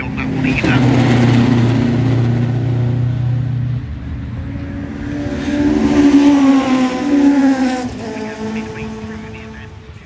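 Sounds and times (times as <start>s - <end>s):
rally car engines racing: 0.0s - 10.0s.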